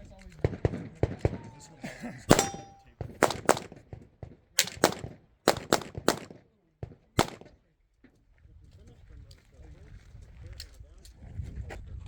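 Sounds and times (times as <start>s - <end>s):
brief metallic ring: 2.3s - 2.9s
pistol shots: 2.3s - 7.6s.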